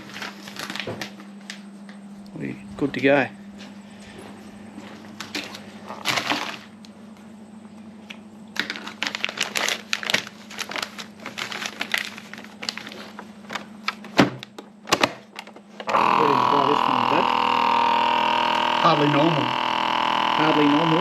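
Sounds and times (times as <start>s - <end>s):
plastic bags clicking and crinkling: 0.0s - 1.6s, 5.2s - 6.8s, 8.6s - 15.7s
steady low hum: 0.0s - 21.0s.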